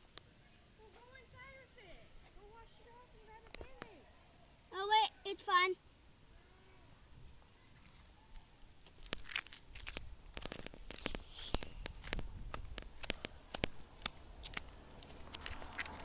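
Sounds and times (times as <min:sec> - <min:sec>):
crinkling and crackling clicks: 0:03.4 - 0:04.6, 0:07.8 - 0:16.0.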